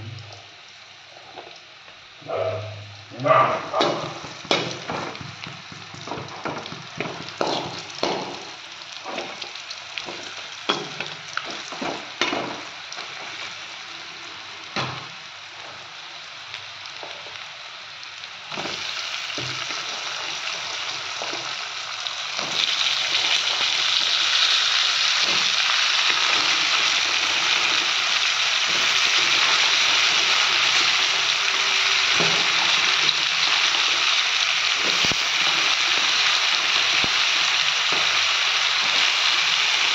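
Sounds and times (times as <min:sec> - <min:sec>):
potatoes sizzling in hot oil: 0:00.0 - 0:39.9
spoon knocking and scraping pan: 0:03.8 - 0:13.5, 0:25.2 - 0:26.8, 0:28.7 - 0:33.5.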